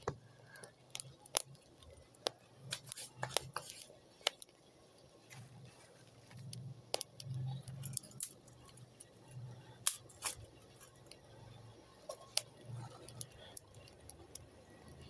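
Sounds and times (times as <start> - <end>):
sharp pops and clicks: 0.0 - 4.6, 6.3 - 9.2, 12.1 - 14.5
wood fire crackling: 0.0 - 15.0.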